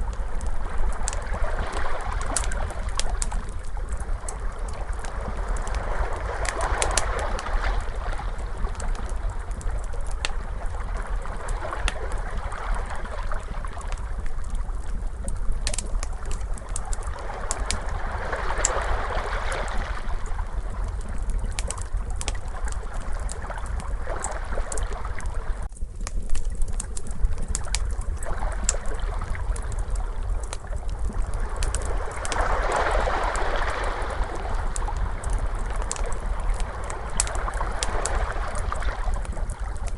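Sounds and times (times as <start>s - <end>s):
crackling fire with pops: 0.0s - 39.9s
steady low rumble: 0.0s - 39.9s
ocean waves washing: 16.7s - 20.6s, 31.3s - 39.8s.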